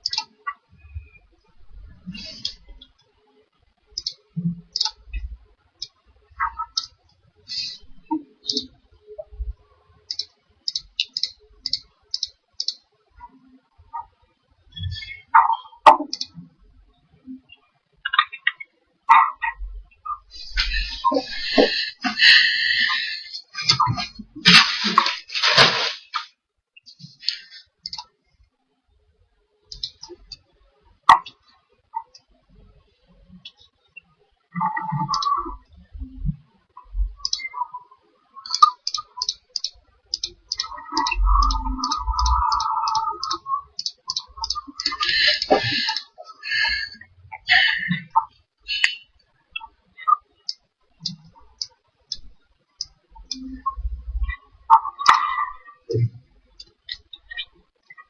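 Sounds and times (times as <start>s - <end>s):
computer mouse and keyboard clicking: 0.0s - 0.3s, 4.0s - 5.0s, 10.1s - 12.8s, 15.9s - 16.4s, 29.7s - 30.4s, 35.1s - 35.4s, 38.4s - 46.6s
faint low thumps: 9.2s - 9.6s, 53.5s - 54.4s
rushing noises: 23.6s - 26.3s.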